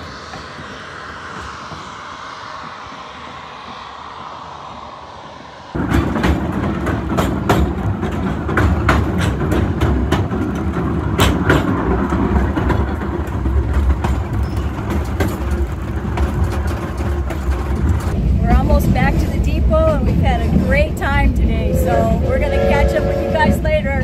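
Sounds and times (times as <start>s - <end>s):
train rumbling: 0.0s - 24.0s
wheels clacking over rail joints: 5.8s - 21.0s.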